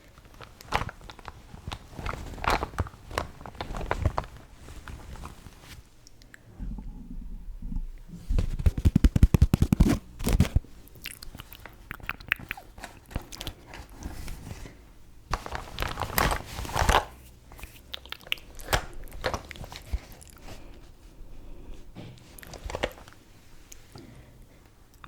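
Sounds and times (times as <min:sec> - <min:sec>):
packaging rustling: 0:00.0 - 0:05.8, 0:08.4 - 0:10.7, 0:12.5 - 0:17.8, 0:18.5 - 0:20.6.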